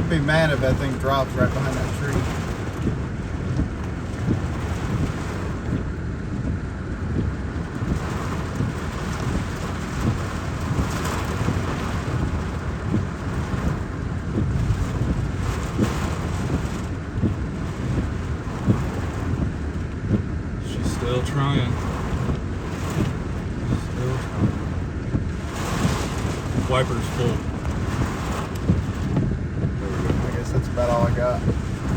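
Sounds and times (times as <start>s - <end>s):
heavy rain on truck windshield: 0.0s - 31.9s
wind buffeting truck cab: 0.0s - 31.9s.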